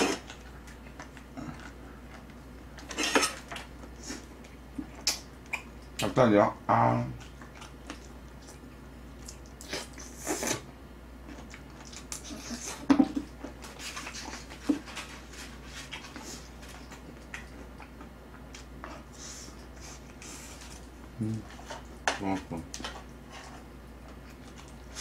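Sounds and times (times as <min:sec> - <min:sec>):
wet chewing and smacking: 0:00.2 - 0:06.1, 0:07.1 - 0:10.3, 0:11.2 - 0:20.9, 0:23.9 - 0:25.0.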